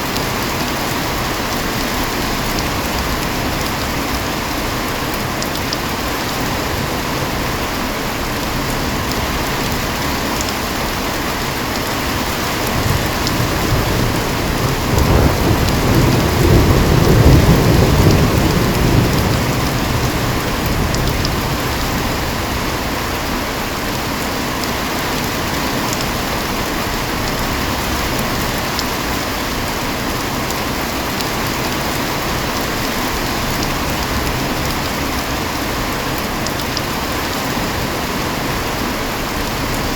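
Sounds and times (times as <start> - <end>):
heavy rain falling: 0.0 - 39.9
low rumble of thunder: 12.2 - 23.3.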